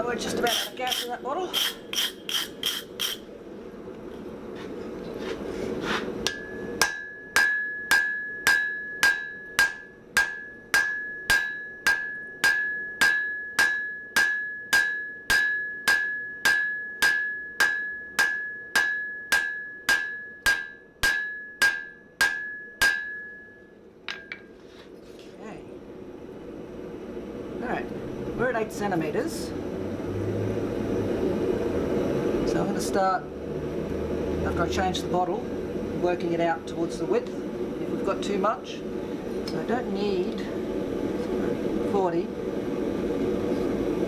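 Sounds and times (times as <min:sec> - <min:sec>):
hammer striking steel on anvil: 0:00.3 - 0:03.3, 0:06.2 - 0:24.6.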